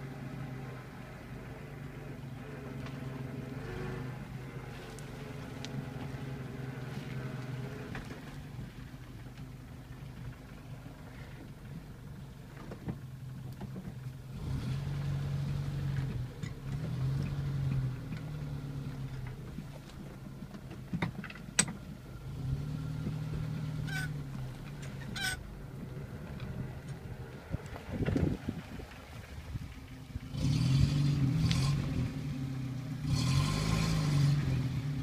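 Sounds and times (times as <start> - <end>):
car engine humming: 0.0 - 35.0.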